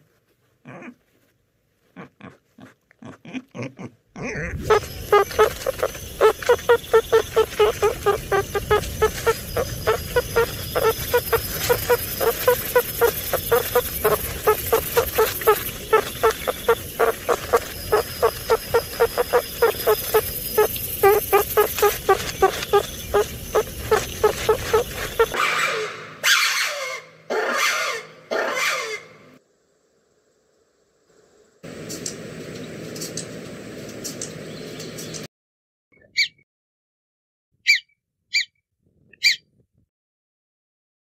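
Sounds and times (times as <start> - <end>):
meerkat chirping calls: 4.3 - 25.4, 37.7 - 38.5, 39.2 - 39.4.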